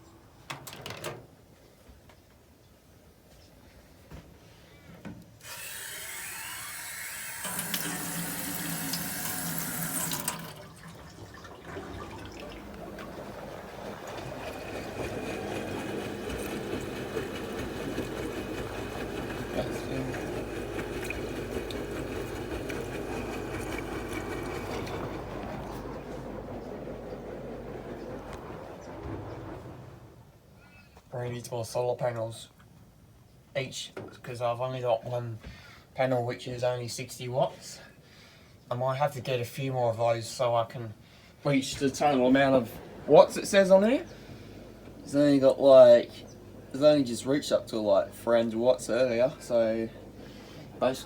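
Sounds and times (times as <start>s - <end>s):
water rushing into washing machine: 5.4s - 30.3s, 41.5s - 51.0s
washing machine drum churning: 6.8s - 30.4s, 41.5s - 51.0s.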